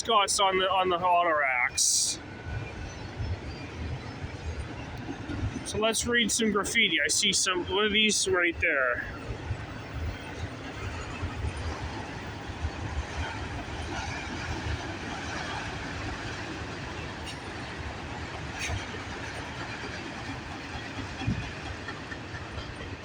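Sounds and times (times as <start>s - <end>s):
freight train wheels rumbling on rail: 0.0s - 23.0s
train wheel knock: 17.2s - 23.0s.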